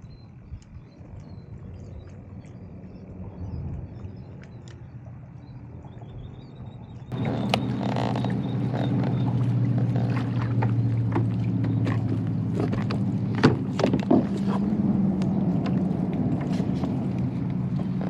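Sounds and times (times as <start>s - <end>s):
motor humming: 7.1s - 18.0s
sharp knocks and clicks: 9.8s - 14.4s.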